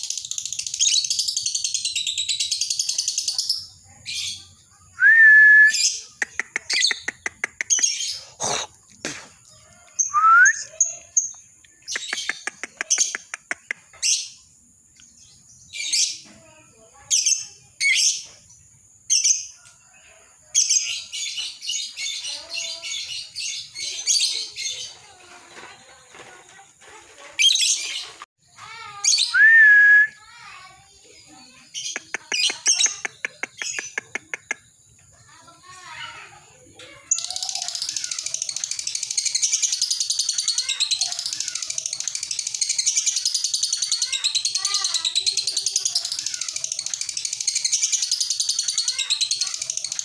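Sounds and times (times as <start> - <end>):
lovebird chattering: 37.1 - 50.0.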